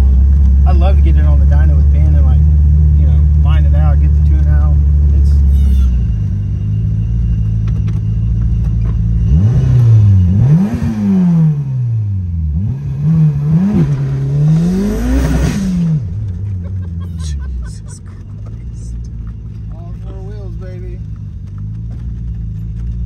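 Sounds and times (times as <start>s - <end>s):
turbocharged car engine revving: 0.0s - 19.7s.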